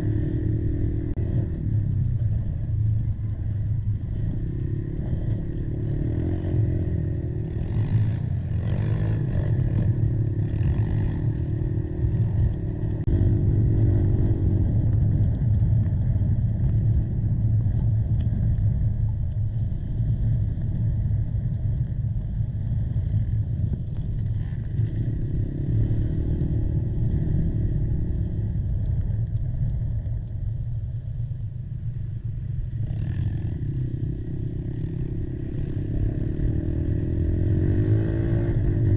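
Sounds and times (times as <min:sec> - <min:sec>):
quad bike engine revving: 0:00.0 - 0:01.6, 0:04.2 - 0:14.6, 0:32.9 - 0:38.9.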